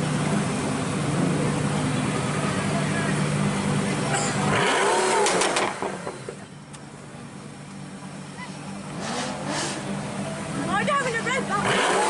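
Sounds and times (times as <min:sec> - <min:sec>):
car engine revving from idle: 0:00.0 - 0:06.1, 0:08.6 - 0:12.0
exhaust crackles and pops: 0:04.1 - 0:06.9.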